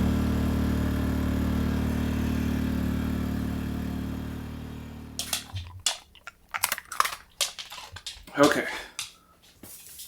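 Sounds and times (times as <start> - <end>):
gas generator running: 0.0 - 6.0.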